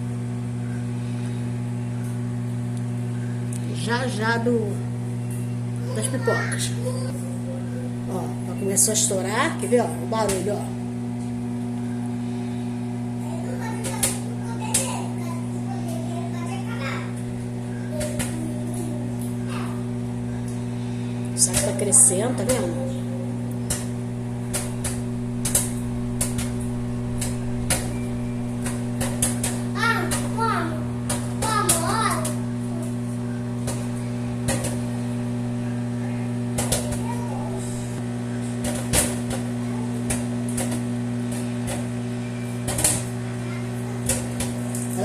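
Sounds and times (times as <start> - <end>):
microwave oven hum: 0.0 - 45.0
popcorn popping: 13.5 - 15.2, 23.3 - 37.4, 38.0 - 43.3.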